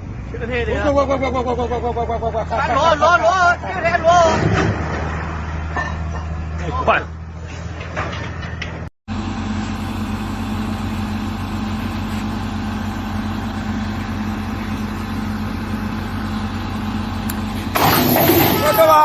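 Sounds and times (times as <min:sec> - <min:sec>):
diesel engine idling: 0:00.0 - 0:04.4, 0:09.1 - 0:19.0.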